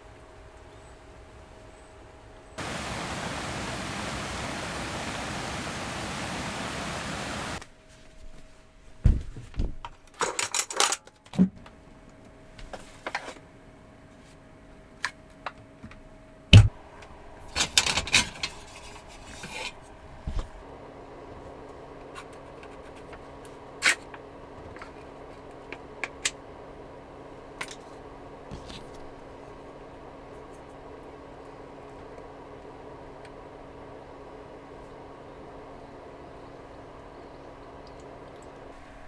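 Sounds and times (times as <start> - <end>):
loud steady hiss: 2.6 - 7.6.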